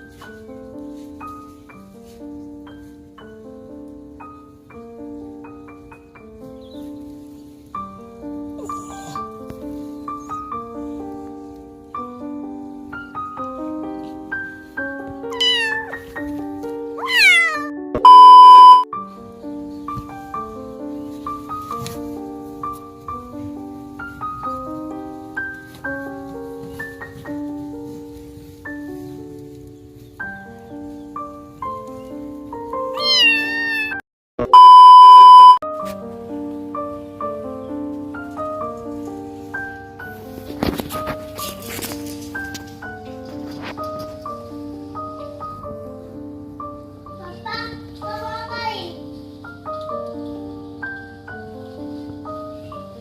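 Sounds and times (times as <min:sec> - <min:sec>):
piano music: 0:00.0 - 0:53.0
kitten meowing: 0:08.6 - 0:09.3, 0:15.3 - 0:16.2, 0:17.0 - 0:18.8, 0:32.9 - 0:35.5
electronic beep: 0:18.0 - 0:18.9, 0:34.4 - 0:35.6
light background music: 0:35.8 - 0:53.0.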